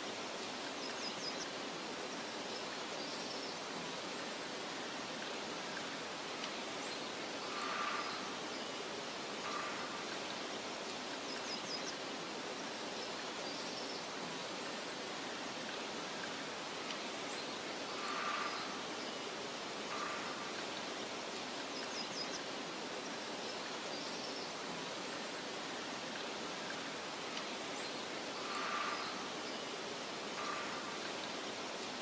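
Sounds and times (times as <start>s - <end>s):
wind rustling hiss: 0.0s - 32.0s
faint bird chirps: 6.6s - 10.4s, 26.7s - 31.6s.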